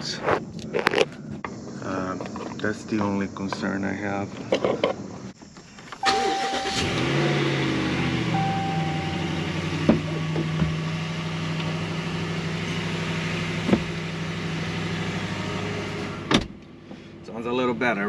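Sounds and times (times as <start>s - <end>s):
short steady beep: 6.0s - 7.2s, 8.3s - 9.7s
pickup engine idling: 6.0s - 17.2s.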